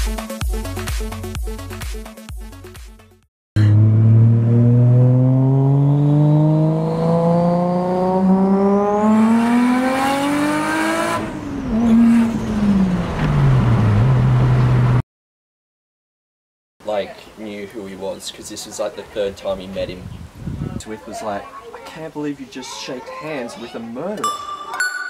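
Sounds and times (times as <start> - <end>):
car engine accelerating: 3.6 - 15.0.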